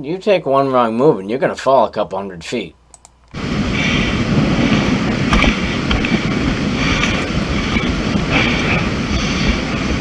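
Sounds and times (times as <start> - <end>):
wind buffeting microphone: 3.4 - 10.0
person breathing hard: 3.6 - 4.9, 6.6 - 7.3, 8.2 - 9.8.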